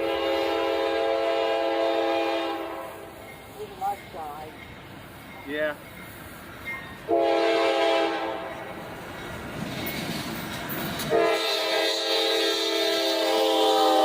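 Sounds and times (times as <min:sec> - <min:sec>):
locomotive air horn chord: 0:00.0 - 0:03.1, 0:07.1 - 0:08.5, 0:11.1 - 0:14.0
train rumble: 0:00.0 - 0:14.0.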